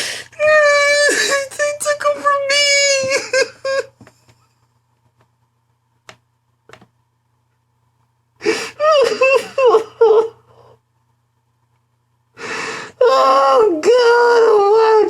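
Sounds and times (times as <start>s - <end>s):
man wailing sob: 0.4s - 3.9s, 8.7s - 10.4s, 13.0s - 15.0s.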